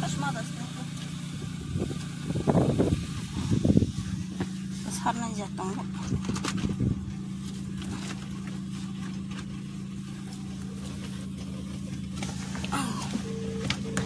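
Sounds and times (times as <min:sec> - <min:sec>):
car engine idling: 0:00.0 - 0:14.0
knocks and rustling: 0:05.8 - 0:14.0.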